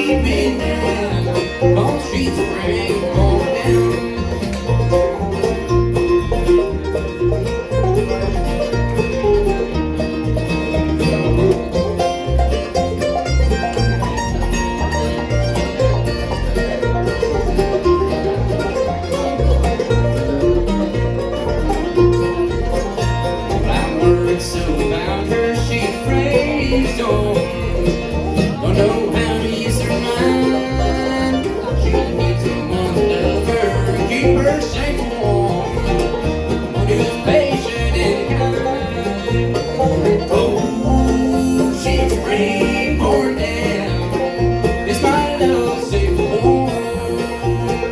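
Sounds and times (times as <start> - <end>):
string band playing bluegrass: 0.0 - 47.9.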